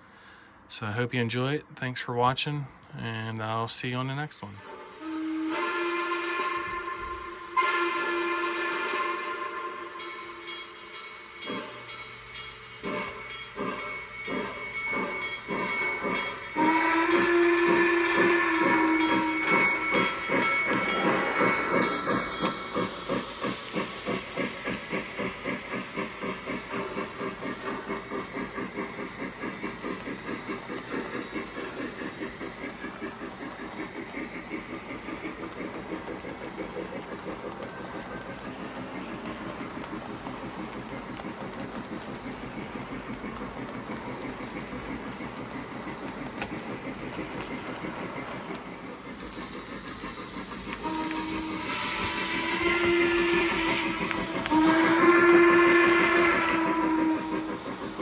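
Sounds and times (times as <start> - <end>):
model steam locomotive chuffing: 2.4 - 58.0
multi-tone steam whistle: 4.5 - 58.0
wheels clicking over track: 12.8 - 58.0.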